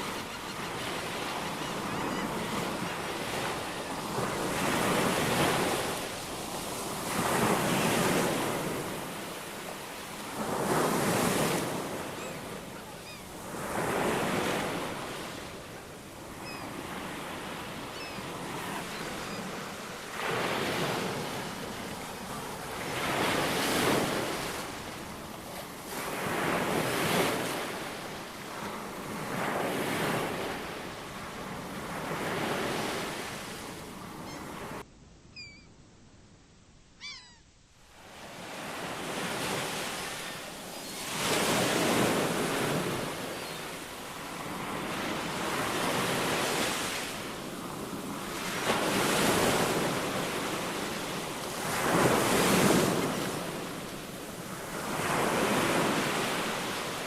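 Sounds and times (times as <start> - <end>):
ocean surf breaking: 0.0 - 34.8, 38.0 - 57.0
short high-pitched animal calls: 35.3 - 35.7, 37.0 - 37.5.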